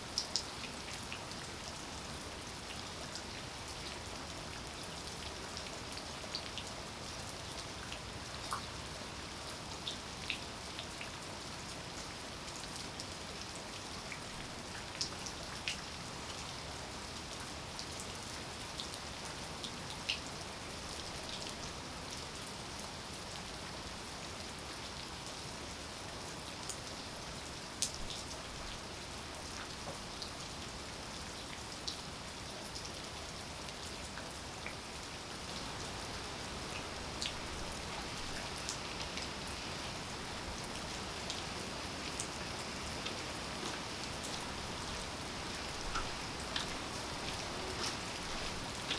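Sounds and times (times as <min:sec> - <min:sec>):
steady rain falling: 0:00.0 - 0:48.9.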